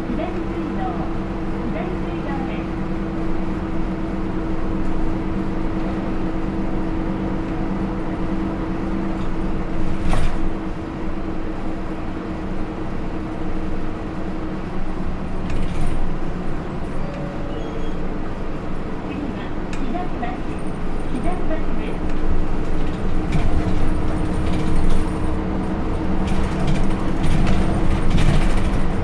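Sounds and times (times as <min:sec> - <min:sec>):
bus engine hum from inside: 0:00.0 - 0:29.0
body rattle knocks: 0:22.6 - 0:25.4, 0:26.0 - 0:29.0.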